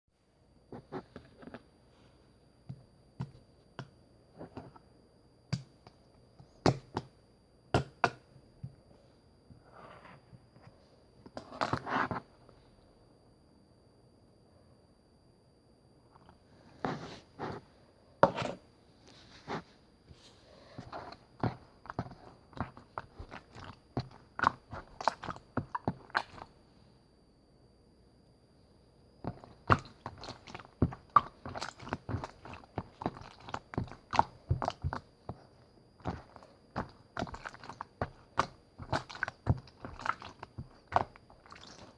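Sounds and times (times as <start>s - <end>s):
slime squishing: 20.5s - 26.6s, 29.2s - 41.9s.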